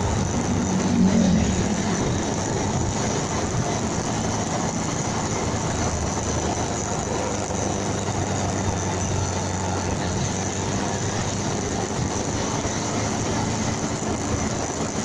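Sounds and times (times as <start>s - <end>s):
motorcycle engine humming: 0.0s - 15.0s
wind and road noise: 0.0s - 15.0s.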